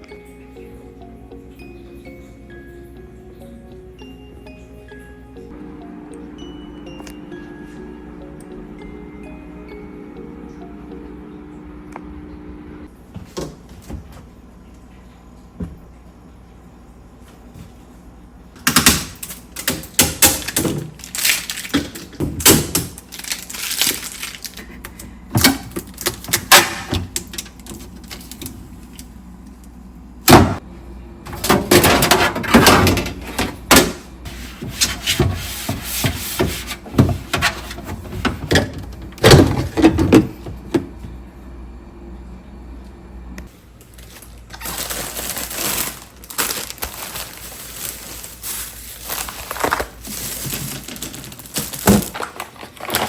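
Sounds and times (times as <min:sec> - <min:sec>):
household items clattering: 0:18.6 - 0:29.1, 0:31.3 - 0:41.2, 0:43.9 - 0:53.0.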